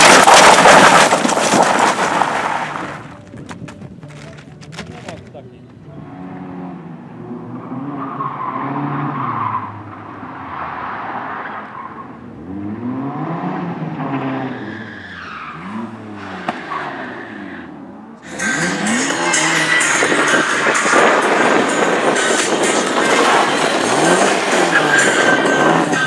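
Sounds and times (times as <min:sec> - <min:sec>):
tyres skidding: 0:00.0 - 0:26.0
racing car engine revving: 0:06.0 - 0:26.0.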